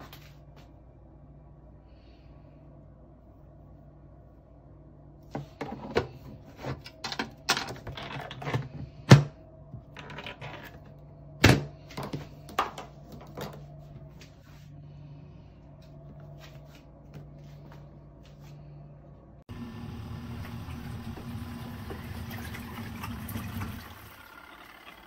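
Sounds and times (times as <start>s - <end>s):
washing machine motor humming: 19.5s - 25.0s.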